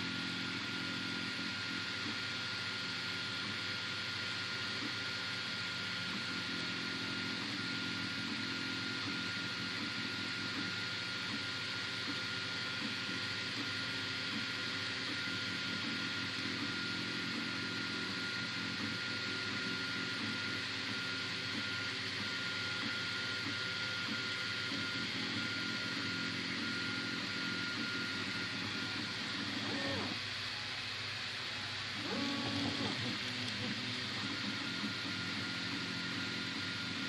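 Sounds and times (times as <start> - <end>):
printer fans hissing and humming: 0.0 - 37.0
stepper motors buzzing: 24.4 - 30.5, 31.3 - 37.0.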